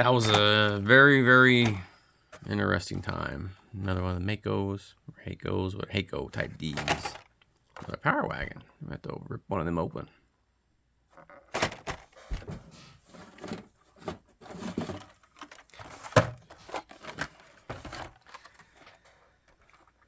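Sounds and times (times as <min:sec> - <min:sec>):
plastic and cardboard crinkling: 0:00.0 - 0:03.3, 0:06.3 - 0:08.0, 0:11.2 - 0:20.0.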